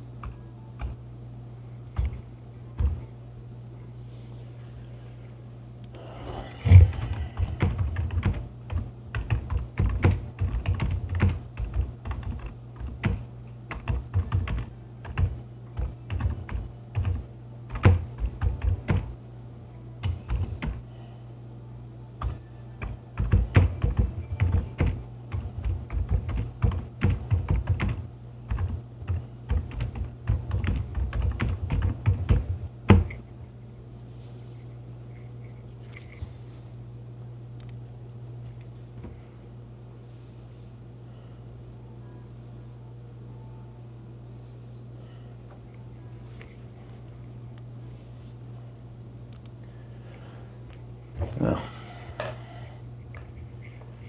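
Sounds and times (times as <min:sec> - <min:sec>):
steady low hum: 0:00.0 - 0:54.0
typing on computer keyboard: 0:06.7 - 0:19.1, 0:20.0 - 0:20.8, 0:22.2 - 0:33.0.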